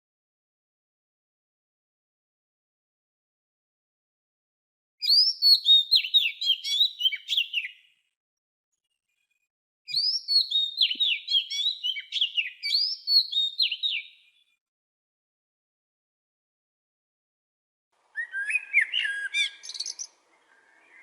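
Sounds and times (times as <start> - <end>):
songbird chirping: 5.0 - 8.1, 9.9 - 14.6, 18.0 - 21.0.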